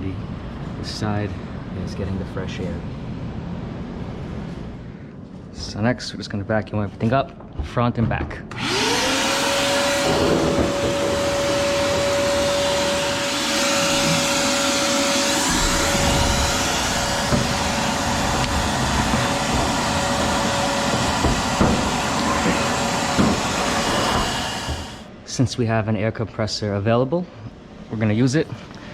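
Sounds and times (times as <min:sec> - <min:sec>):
vacuum cleaner running: 0:08.5 - 0:25.1
knocks: 0:09.3 - 0:25.0.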